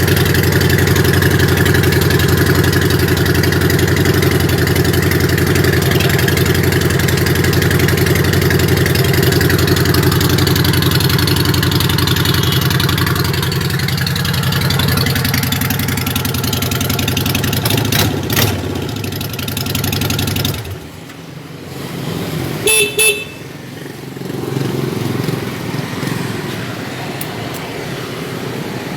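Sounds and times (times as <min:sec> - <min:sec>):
motorcycle engine running: 0:00.0 - 0:21.6, 0:22.2 - 0:26.4
short horn beeps: 0:22.6 - 0:23.5.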